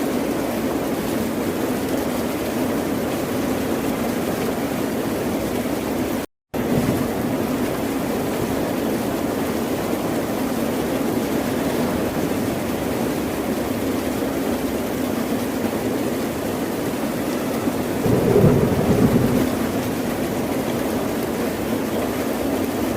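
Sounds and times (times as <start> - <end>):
ocean surf rushing: 17.7 - 21.7.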